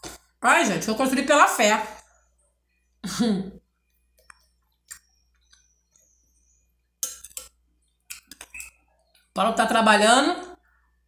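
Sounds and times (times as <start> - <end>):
metal spoon clicking in glass bowl: 7.0 - 7.5.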